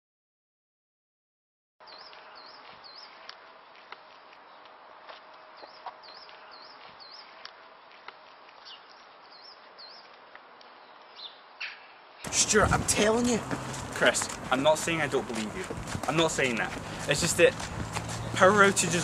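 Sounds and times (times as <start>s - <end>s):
small bird chirping: 1.8s - 3.2s, 8.6s - 12.0s.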